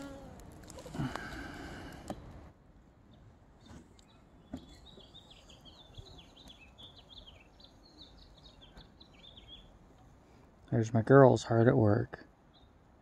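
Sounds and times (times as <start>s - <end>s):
songbird chirping: 3.0s - 11.4s, 12.3s - 13.0s.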